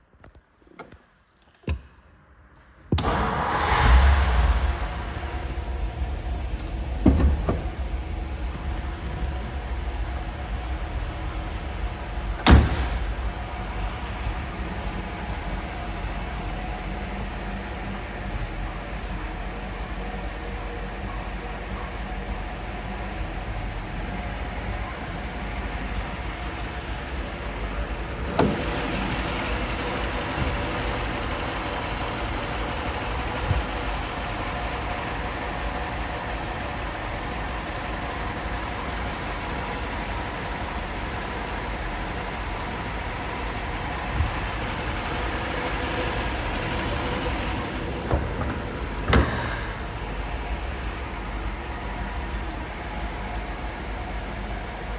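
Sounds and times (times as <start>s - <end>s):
car engine starting and idling: 2.9s - 54.9s
sharp engine knocks: 3.0s - 16.6s, 44.0s - 51.2s.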